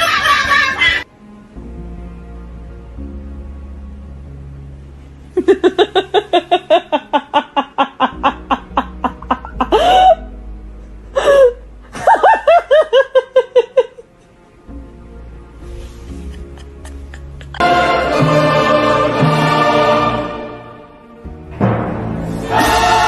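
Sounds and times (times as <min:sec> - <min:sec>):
high voice laughing in bursts: 0:00.0 - 0:01.0
background music: 0:00.0 - 0:23.0.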